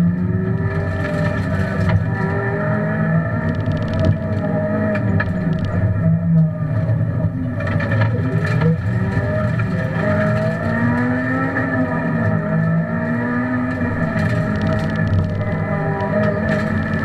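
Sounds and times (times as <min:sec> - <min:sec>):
rally car engine from inside cabin: 0:00.0 - 0:17.0
sharp clicks: 0:03.4 - 0:05.8, 0:14.2 - 0:17.0.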